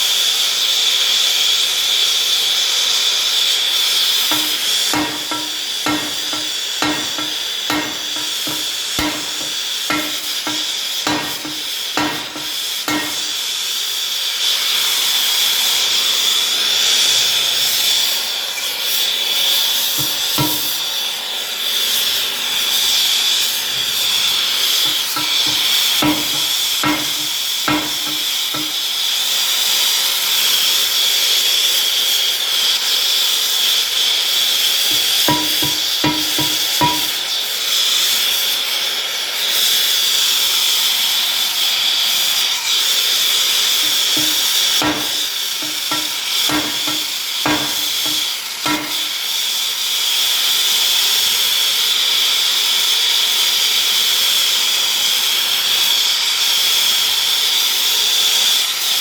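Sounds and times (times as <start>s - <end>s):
steady hiss: 3.7s - 15.2s, 18.6s - 29.2s, 34.8s - 37.8s, 42.4s - 49.4s
hammer blows on steel rim: 4.3s - 13.5s, 20.0s - 20.8s, 24.8s - 28.8s, 34.9s - 37.2s, 43.7s - 49.2s.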